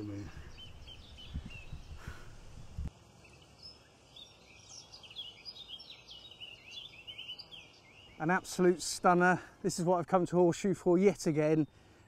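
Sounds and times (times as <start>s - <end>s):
faint outdoor hiss: 0.0s - 12.0s
songbird chirping: 0.0s - 12.0s.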